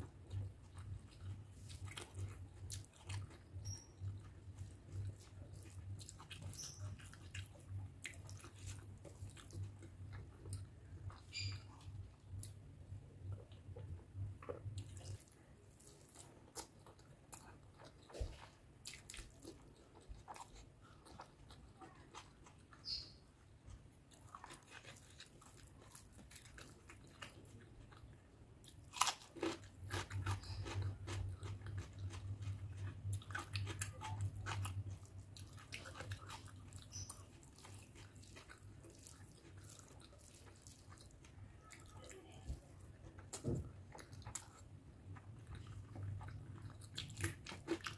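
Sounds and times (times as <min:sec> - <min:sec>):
chewing with mouth clicks: 0:00.0 - 0:12.6, 0:13.2 - 0:47.9
crunch of biting cucumber: 0:28.8 - 0:34.8.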